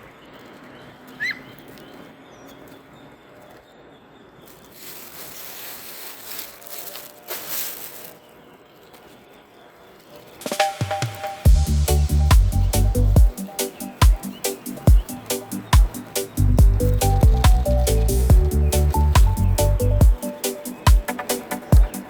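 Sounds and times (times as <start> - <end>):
faint outdoor background: 0.0 - 22.0
rushing rustling noise: 4.5 - 8.6.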